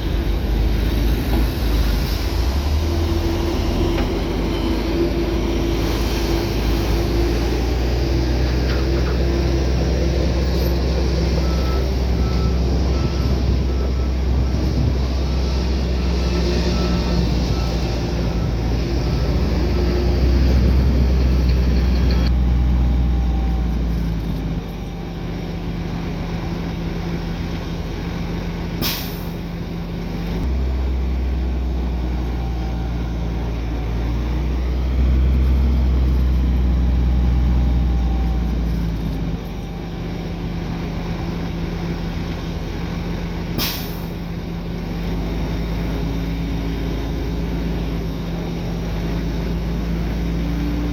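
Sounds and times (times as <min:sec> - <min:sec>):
heavy diesel engines running: 0:00.0 - 0:50.9.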